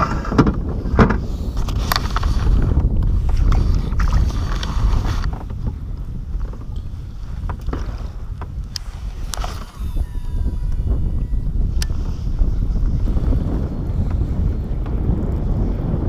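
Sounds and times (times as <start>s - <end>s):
clicks and knocks on boat: 0.0s - 8.8s
wind rumbling on microphone: 0.0s - 16.0s.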